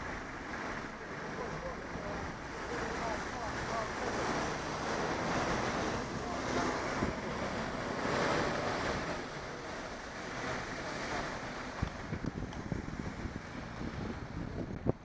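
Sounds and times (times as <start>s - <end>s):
wind roaring over microphone: 1.8s - 15.0s.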